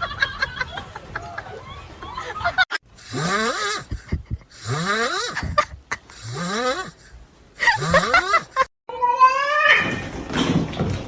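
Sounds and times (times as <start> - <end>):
pet snoring: 3.0 - 3.9, 4.6 - 5.6, 6.2 - 7.1, 7.7 - 8.5.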